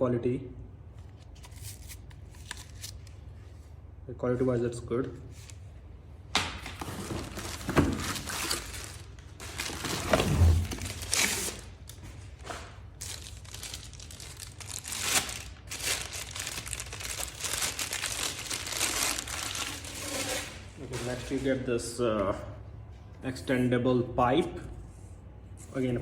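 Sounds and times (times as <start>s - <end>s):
packaging crinkling and rustling: 1.1s - 3.2s, 6.6s - 21.7s.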